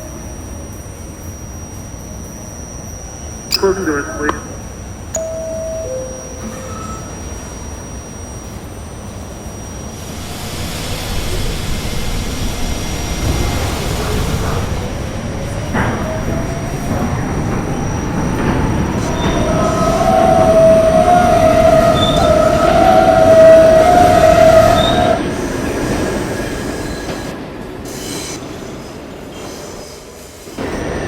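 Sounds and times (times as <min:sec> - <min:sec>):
subway train rumbling on rails: 0:00.0 - 0:03.3, 0:04.2 - 0:31.0
train wheels squealing: 0:15.7 - 0:27.3, 0:27.9 - 0:31.0.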